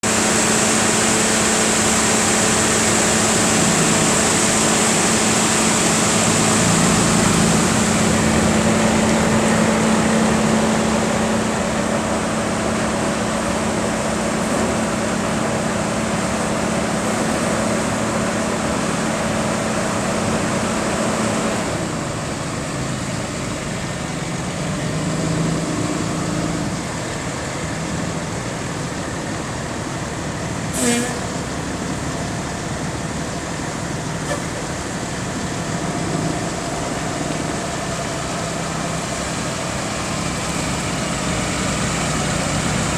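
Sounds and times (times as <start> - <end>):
truck engine hum: 0.0 - 42.9
hiss: 30.7 - 31.3.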